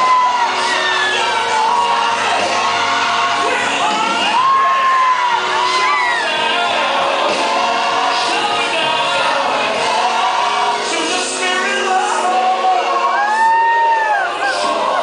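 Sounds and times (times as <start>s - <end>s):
congregation shouting and whooping: 0.0s - 6.9s, 11.9s - 15.0s
people singing: 0.0s - 15.0s.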